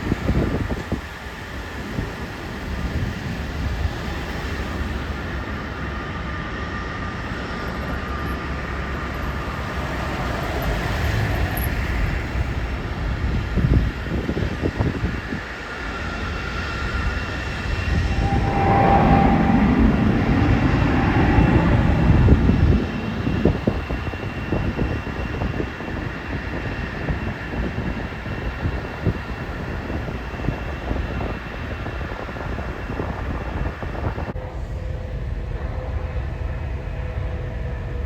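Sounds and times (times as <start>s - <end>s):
jet engine roar: 8.4s - 34.4s.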